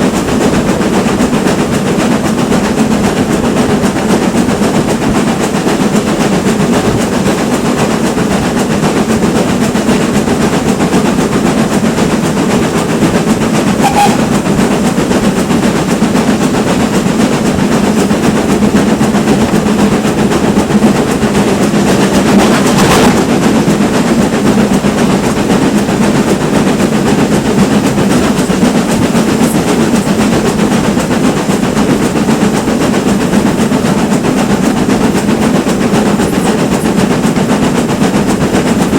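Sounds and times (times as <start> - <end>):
train wheels rattling on rails: 0.0 - 38.9.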